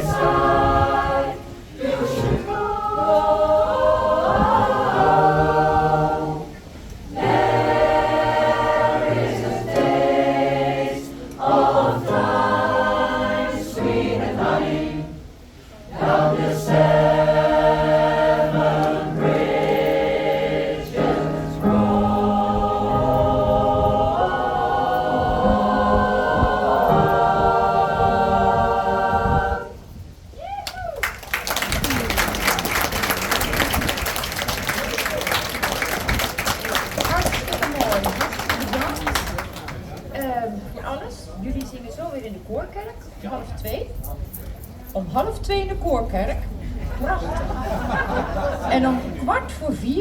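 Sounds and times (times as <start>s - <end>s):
pop choir singing in harmony: 0.0s - 30.0s.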